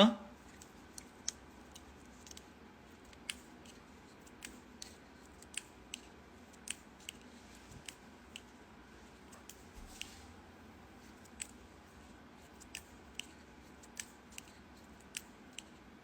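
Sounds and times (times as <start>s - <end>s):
faint small clicks: 12.6s - 15.8s.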